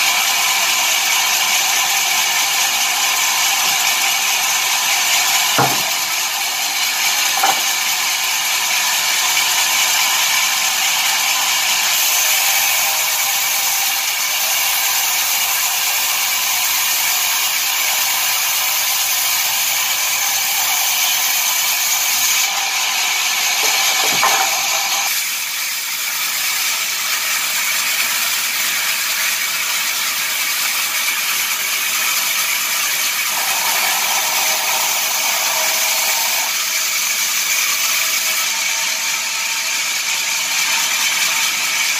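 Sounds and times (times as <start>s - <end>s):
sawmill machinery running: 0.0s - 41.9s
sharp knocks: 5.6s - 6.1s.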